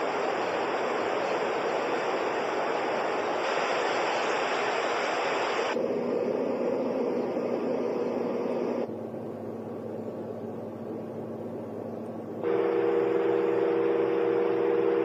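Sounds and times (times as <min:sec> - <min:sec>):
white noise machine: 0:00.0 - 0:15.0
low steady hum: 0:05.3 - 0:15.0.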